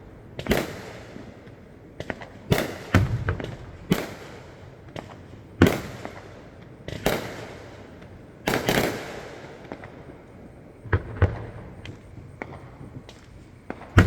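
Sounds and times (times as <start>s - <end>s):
firework shells booming: 2.0s - 10.2s, 10.8s - 14.0s.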